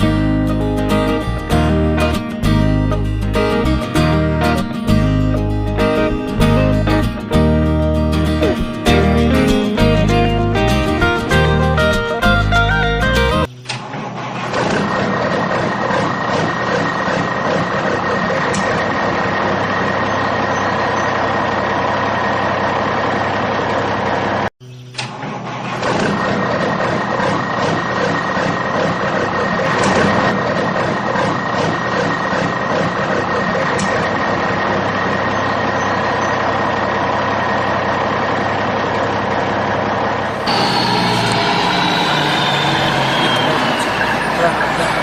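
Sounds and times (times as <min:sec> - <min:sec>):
engine running with whine: 0:00.0 - 0:45.0
falling whine: 0:34.8 - 0:45.0.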